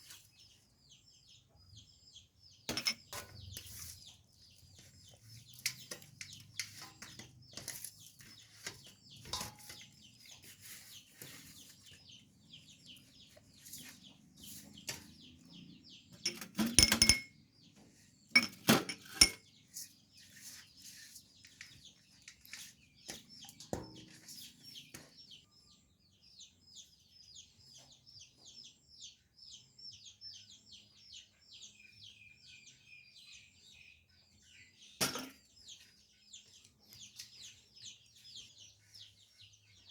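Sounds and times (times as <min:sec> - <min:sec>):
dishes clattering: 0:02.7 - 0:03.5, 0:09.2 - 0:09.9, 0:16.2 - 0:17.4, 0:18.4 - 0:19.5, 0:35.0 - 0:35.5
dishes and utensils clinking: 0:02.7 - 0:03.7, 0:05.5 - 0:08.0, 0:08.6 - 0:10.1, 0:16.2 - 0:17.4, 0:18.4 - 0:19.5, 0:35.0 - 0:35.4.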